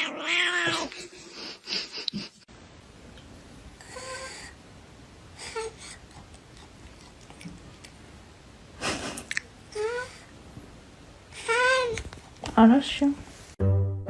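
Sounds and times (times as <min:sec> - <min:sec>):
cat mewing: 0:00.0 - 0:00.9.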